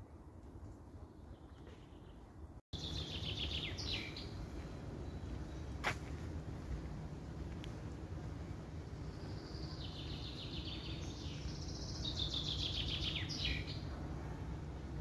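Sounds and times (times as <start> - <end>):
songbird singing rapid trills: 2.8 - 4.4, 9.0 - 13.9
low background rumble: 2.8 - 15.0.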